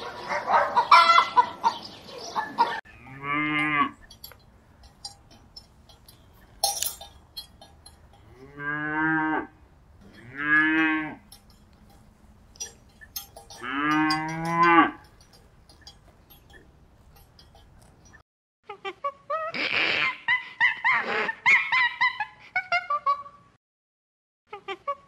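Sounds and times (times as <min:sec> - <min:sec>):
cowbell clanking: 0:02.8 - 0:18.2
cow mooing: 0:02.9 - 0:04.1, 0:08.1 - 0:11.4, 0:12.6 - 0:15.2
light clinking: 0:03.6 - 0:08.8, 0:09.6 - 0:18.2.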